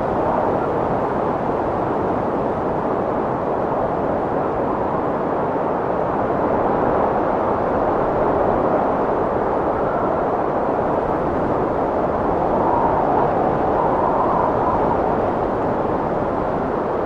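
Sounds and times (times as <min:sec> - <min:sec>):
strong wind rushing: 0:00.0 - 0:17.0
faint wind whistle: 0:11.8 - 0:16.2.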